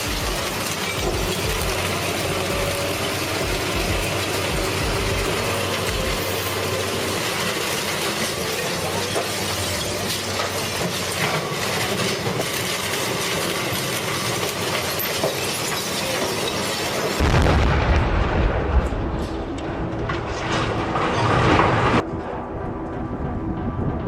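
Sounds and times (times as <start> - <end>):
shredder heavy rumble: 0.0 - 15.6.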